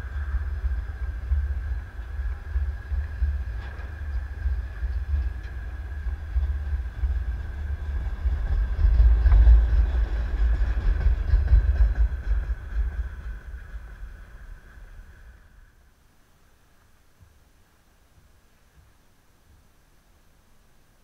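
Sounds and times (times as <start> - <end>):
train wheels rumbling on rail: 0.0 - 15.8.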